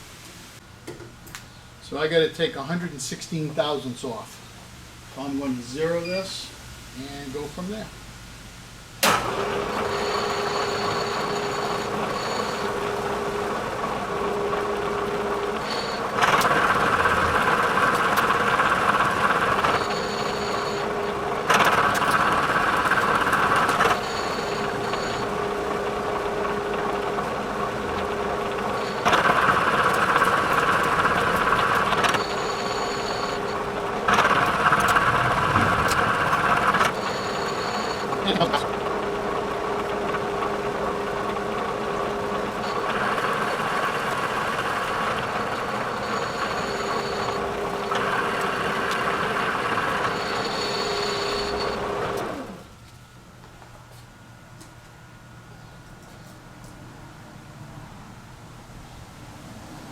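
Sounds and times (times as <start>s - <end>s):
milling machine running: 9.0s - 52.7s
cutter milling metal: 9.1s - 52.6s.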